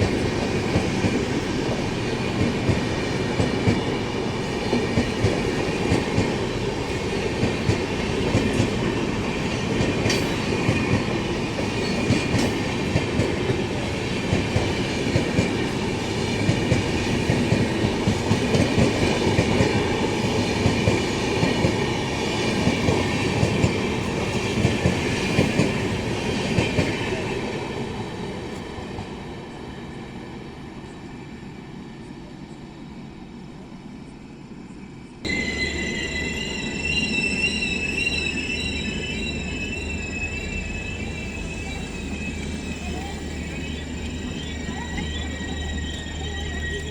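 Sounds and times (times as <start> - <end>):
train wheels clacking over rail joints: 4.7 - 15.7.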